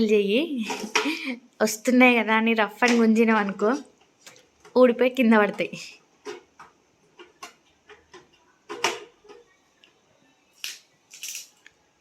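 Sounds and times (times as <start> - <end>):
plastic parts clicking and knocking: 5.4 - 10.0.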